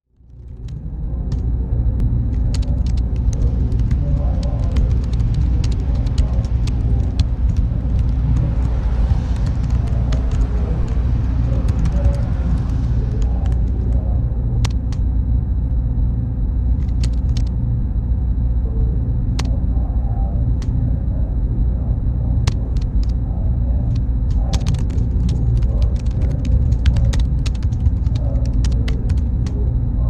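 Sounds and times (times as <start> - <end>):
cooling fans humming: 0.1 - 30.0
sharp clicks: 16.8 - 17.5, 22.4 - 23.2.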